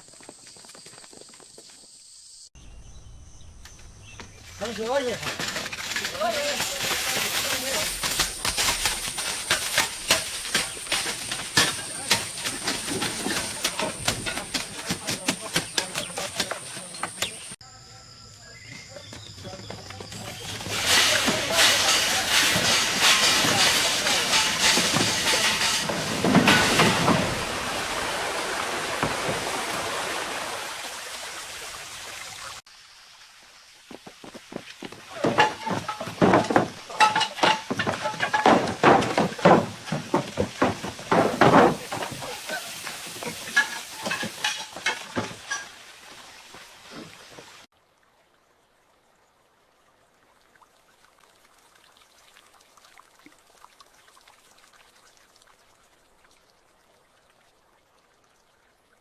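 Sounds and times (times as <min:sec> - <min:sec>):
loud hiss with thumps: 0:20.1 - 0:30.3, 0:33.8 - 0:47.6
water dripping: 0:41.8 - 0:59.0.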